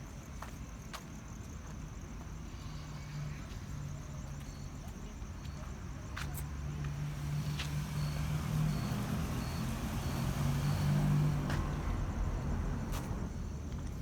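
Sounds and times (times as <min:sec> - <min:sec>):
vehicle driving past: 0:06.8 - 0:14.0.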